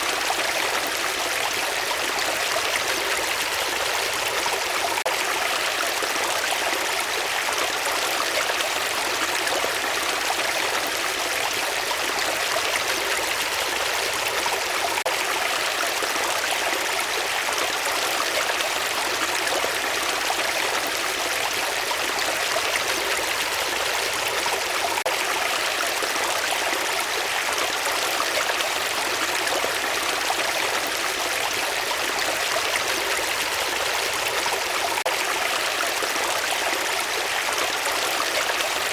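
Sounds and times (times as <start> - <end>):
flowing water: 0.0 - 38.9.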